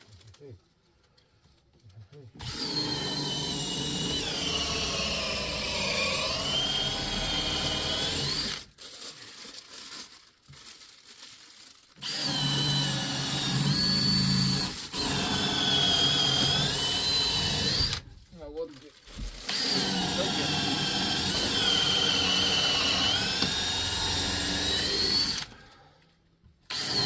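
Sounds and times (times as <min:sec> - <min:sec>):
power drill whining under load: 0:02.4 - 0:08.7, 0:12.0 - 0:18.1, 0:19.4 - 0:25.8, 0:26.7 - 0:27.0.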